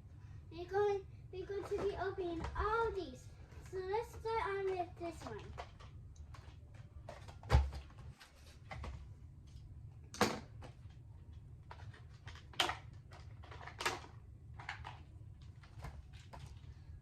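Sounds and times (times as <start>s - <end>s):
low steady hum: 0.0s - 17.0s
plastic and cardboard rustling: 1.4s - 9.1s, 11.7s - 16.9s.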